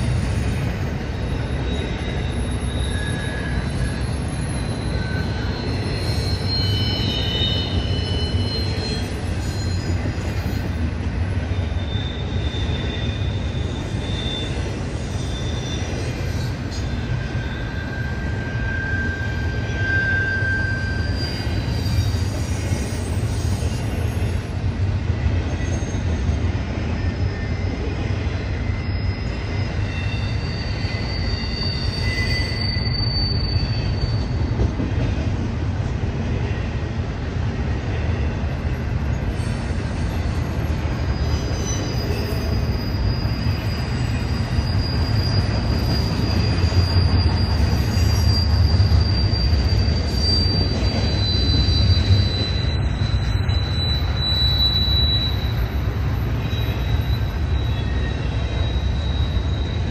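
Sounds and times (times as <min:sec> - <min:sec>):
high wheel squeals: 0:00.0 - 0:34.8, 0:38.6 - 0:59.9
freight train rumbling past: 0:00.0 - 0:59.9.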